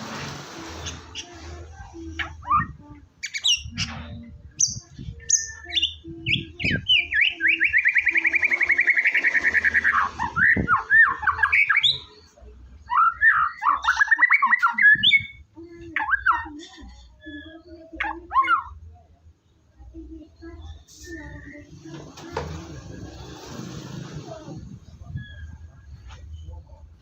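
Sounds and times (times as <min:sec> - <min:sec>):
bird singing whistled notes and trills: 0:00.8 - 0:18.9, 0:20.3 - 0:21.9, 0:24.9 - 0:27.0.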